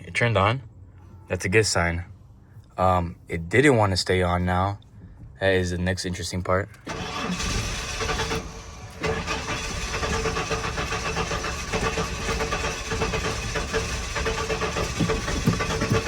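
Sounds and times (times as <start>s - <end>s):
engine cranking without starting: 6.7s - 16.0s.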